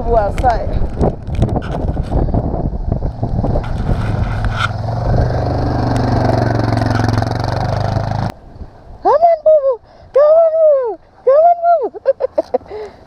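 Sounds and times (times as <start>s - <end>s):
wind noise on microphone: 0.0s - 11.9s
engine humming: 2.7s - 8.4s
crunching and scraping: 3.4s - 5.1s.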